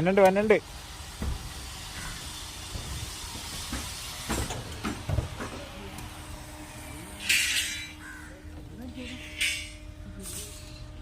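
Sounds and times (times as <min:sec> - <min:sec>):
sharp knocks and thuds: 0:01.2 - 0:02.1.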